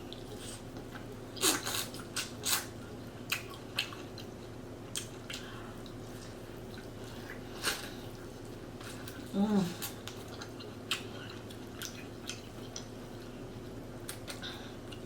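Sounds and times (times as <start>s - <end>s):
wet mouth chewing and smacking: 3.3s - 7.4s, 10.0s - 13.0s.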